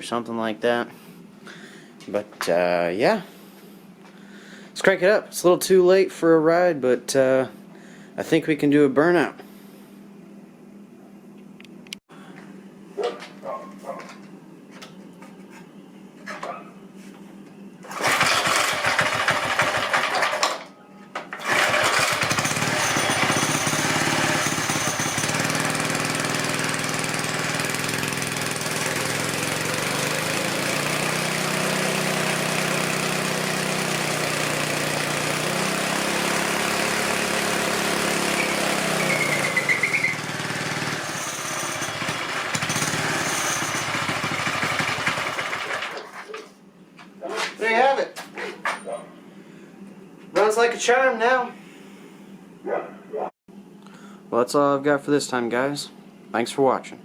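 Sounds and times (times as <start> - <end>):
small engine running: 17.9 - 20.6, 21.4 - 46.1.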